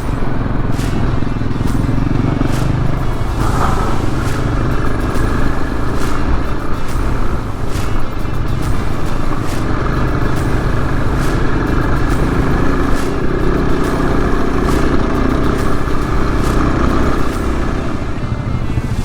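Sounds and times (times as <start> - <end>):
motorcycle engine rumble: 0.0 - 19.0.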